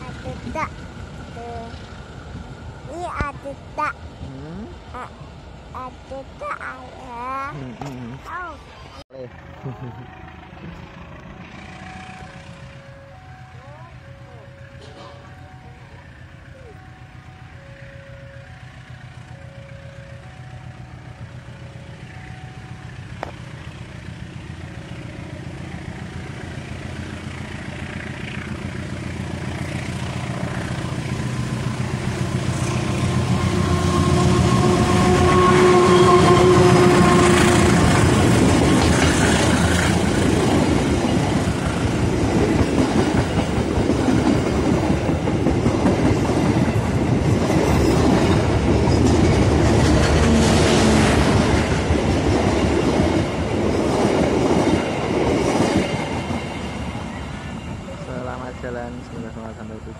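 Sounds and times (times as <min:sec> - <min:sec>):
diesel locomotive engine drone: 0:00.0 - 0:59.9
train wheels clattering on rails: 0:26.8 - 0:57.9
train horn chord: 0:32.7 - 0:38.3.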